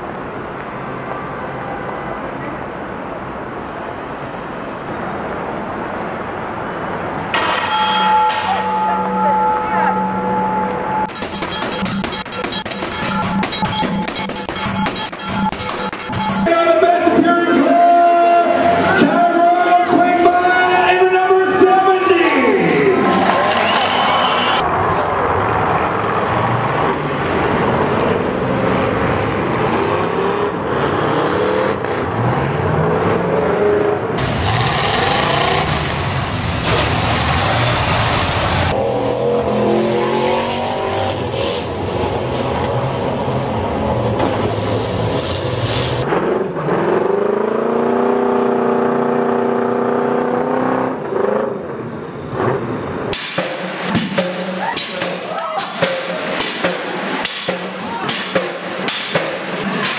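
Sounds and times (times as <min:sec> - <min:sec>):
car engines revving: 0:00.0 - 0:59.9
sharp knocks: 0:11.0 - 0:16.5, 0:53.1 - 0:59.9.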